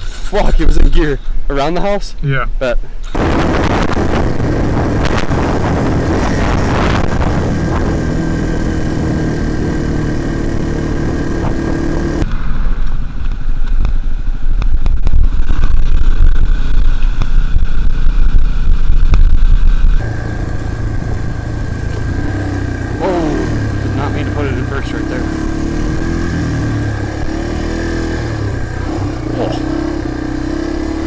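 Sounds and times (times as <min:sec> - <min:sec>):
wind buffeting microphone: 0:03.1 - 0:12.0
dirt bike engine running: 0:03.1 - 0:12.3, 0:20.0 - 0:31.0.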